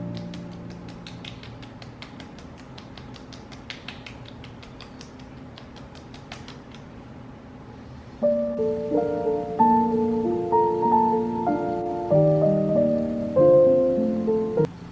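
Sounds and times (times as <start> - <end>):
fingertips tapping on skin: 0.0 - 6.9.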